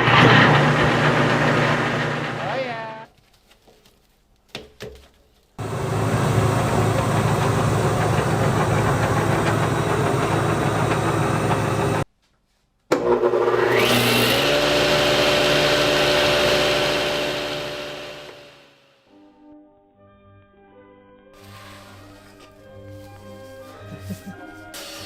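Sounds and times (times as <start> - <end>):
jointer running with whine: 0.0 - 3.0, 5.6 - 12.0, 13.0 - 18.8.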